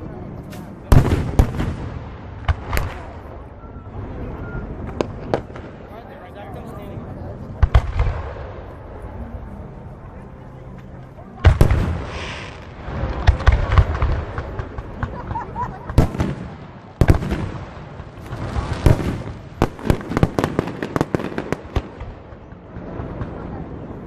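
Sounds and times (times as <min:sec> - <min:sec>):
crackling firework pops: 0:00.4 - 0:03.3, 0:04.8 - 0:05.9, 0:11.4 - 0:23.4.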